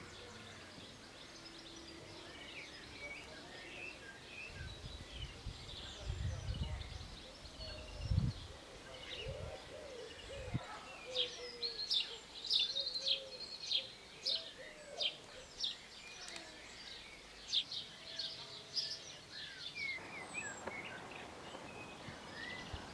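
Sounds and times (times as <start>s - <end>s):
soft low bird calls: 19.2s - 22.9s.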